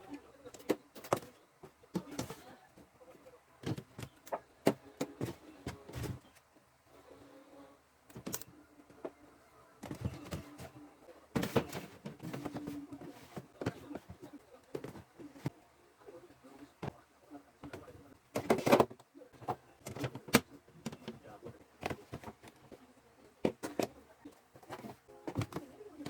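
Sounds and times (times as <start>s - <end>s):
household items clattering: 3.6s - 6.3s, 9.8s - 15.5s, 17.6s - 22.8s, 23.4s - 26.0s.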